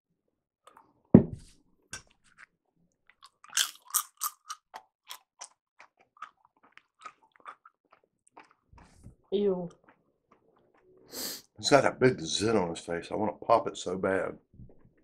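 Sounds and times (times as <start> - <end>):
dull thump: 1.2 - 1.5
wet chewing smacks: 3.1 - 9.0.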